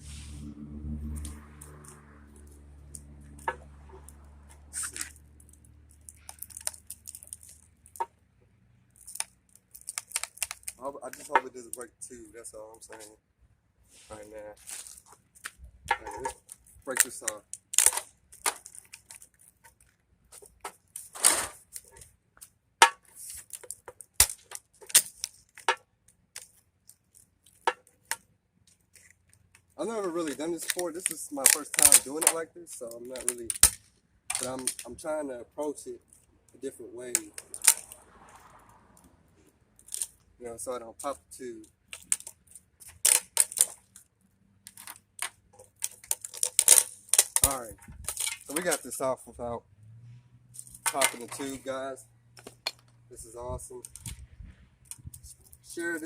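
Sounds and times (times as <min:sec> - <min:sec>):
plastic and wire snapping: 0:04.8 - 0:08.2, 0:09.0 - 0:11.5, 0:14.9 - 0:29.7, 0:30.3 - 0:32.4, 0:33.0 - 0:34.9, 0:37.2 - 0:38.0, 0:41.9 - 0:48.9, 0:53.8 - 0:55.6
plastic housing snapping and cracking: 0:44.7 - 0:48.7.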